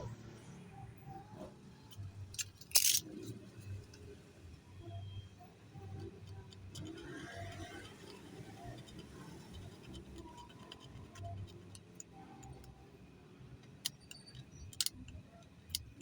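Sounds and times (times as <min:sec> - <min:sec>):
objects clicking on a workbench: 0:01.9 - 0:03.3.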